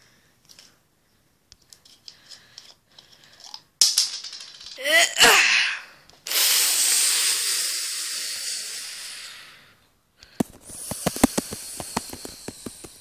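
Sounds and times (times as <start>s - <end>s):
loud hiss: 6.3s - 9.5s, 10.6s - 13.0s.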